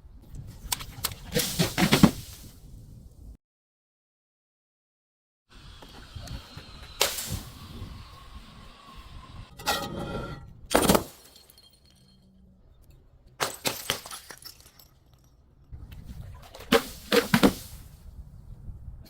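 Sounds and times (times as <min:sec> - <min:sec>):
glass bottles shattering: 0:10.7 - 0:12.4, 0:13.4 - 0:15.4.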